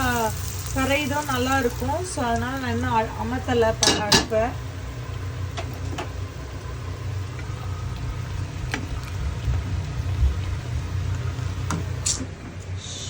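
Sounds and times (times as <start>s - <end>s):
kitchen appliance rumble: 0.0s - 13.0s
pan cooking: 0.0s - 13.0s.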